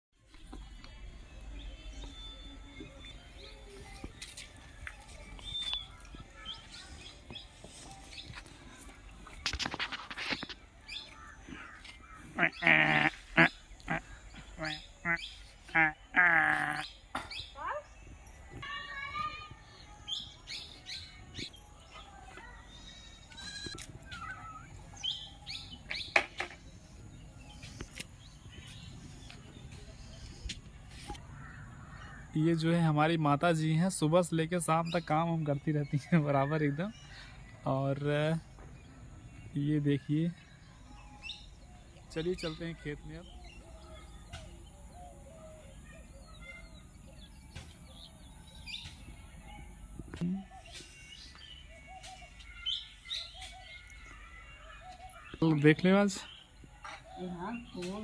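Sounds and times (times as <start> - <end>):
small birds chirping: 0.2 - 58.0
goats bleating: 12.4 - 14.0, 15.7 - 16.8.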